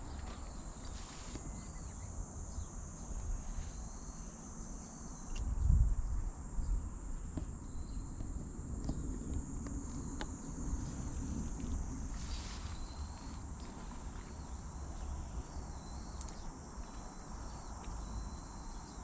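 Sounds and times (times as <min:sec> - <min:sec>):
insects chorus: 0:00.0 - 0:19.0
faint clicks and chirps: 0:16.1 - 0:17.1.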